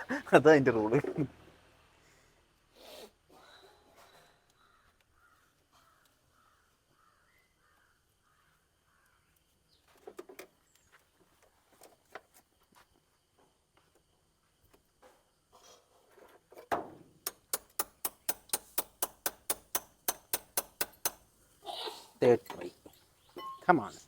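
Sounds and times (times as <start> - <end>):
faint bird calls: 3.3 - 9.9
sharp clicks or knocks: 17.2 - 21.2.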